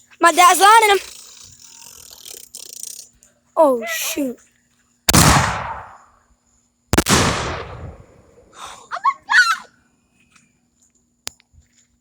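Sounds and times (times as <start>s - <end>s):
startled vocal exclamation: 3.6s - 4.4s, 8.9s - 9.7s
firework bang with echo: 5.1s - 6.0s.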